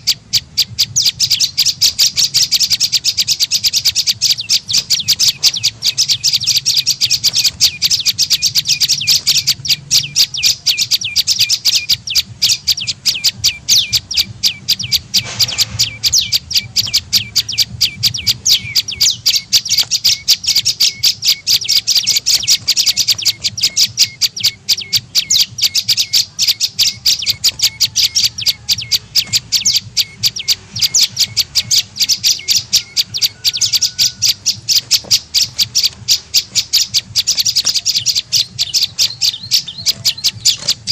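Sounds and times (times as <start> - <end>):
high-pitched bird chirps: 0.0 - 40.9.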